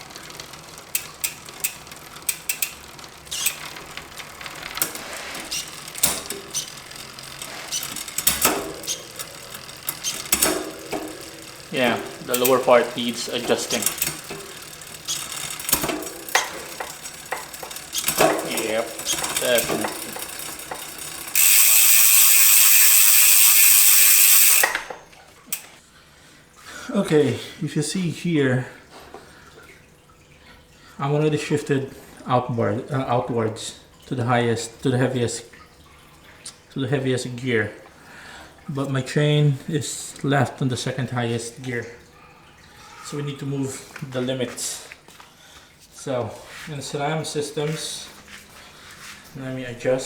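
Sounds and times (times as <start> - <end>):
bike chain clatter: 0.0 - 25.1
bicycle freehub ratcheting: 0.0 - 25.7
derailleur clicks: 0.0 - 25.7.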